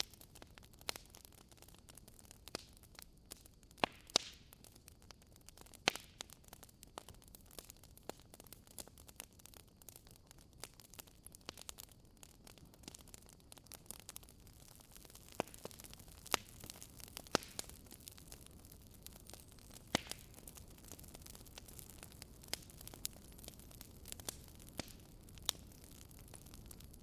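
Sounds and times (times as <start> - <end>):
logs crackling in a fireplace: 0.0 - 27.0
sharp fire pops: 3.3 - 4.7, 5.6 - 6.3, 11.4 - 27.0.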